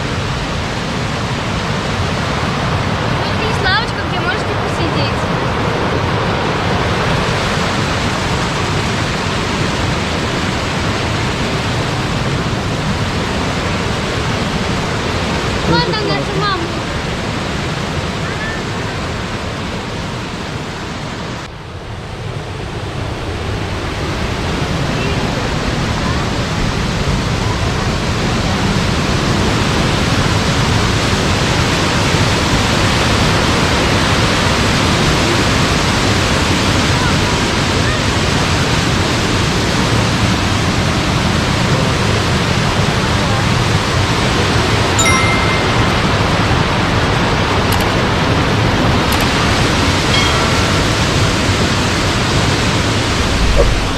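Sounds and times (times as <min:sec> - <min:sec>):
waterfall rushing: 0:45.0 - 0:46.8
thin high tone: 0:45.0 - 0:46.9, 0:50.1 - 0:53.9.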